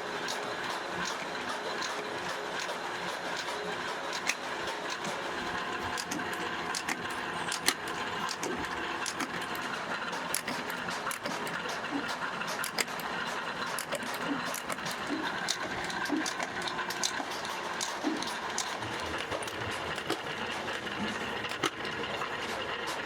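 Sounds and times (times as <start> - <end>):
workshop machinery running: 0.0 - 23.0
small metallic clicks: 5.9 - 9.7.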